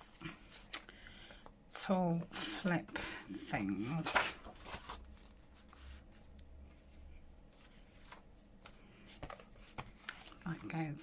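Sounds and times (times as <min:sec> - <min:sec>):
paper rustling: 0:02.6 - 0:11.0.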